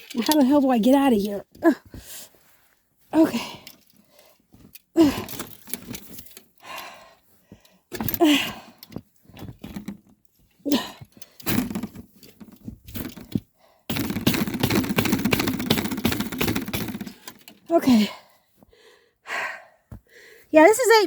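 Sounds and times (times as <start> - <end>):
crunching of deep snow: 1.0 - 3.5
person grunting with effort: 5.0 - 5.4.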